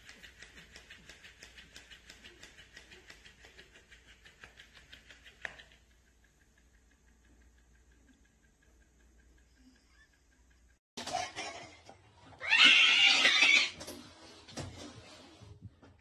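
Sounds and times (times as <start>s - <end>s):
light clicking on tile floor: 0.0s - 10.8s.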